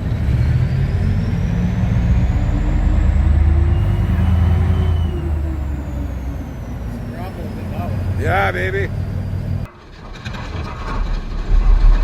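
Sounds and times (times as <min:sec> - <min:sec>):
deep steady rumble: 0:00.0 - 0:09.7.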